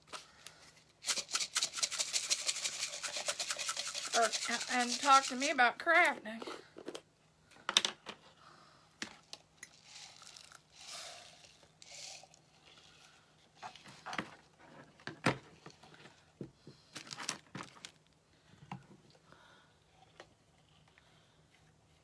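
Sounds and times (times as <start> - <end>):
plastic crinkling and rustling: 16.9 - 18.1.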